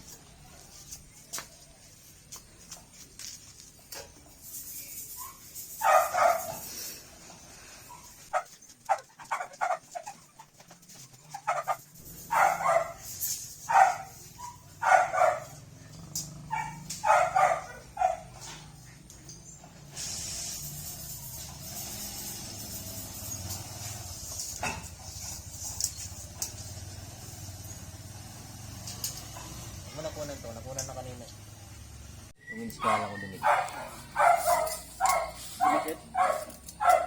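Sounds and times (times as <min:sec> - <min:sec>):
dog barking: 0:05.2 - 0:06.6, 0:11.4 - 0:13.1, 0:13.7 - 0:18.8, 0:32.8 - 0:37.0.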